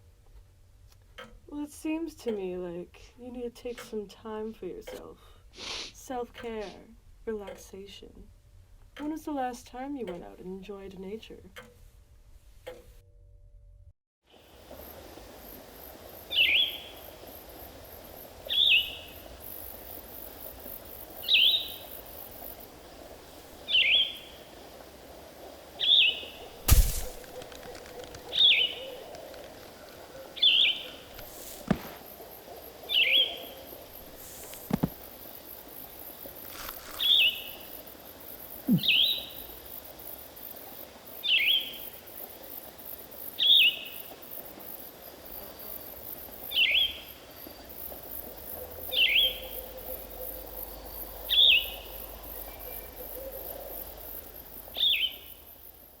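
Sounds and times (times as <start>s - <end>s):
faint high hiss: 14.3s - 55.9s
bird call downward-slurred: 38.7s - 39.2s.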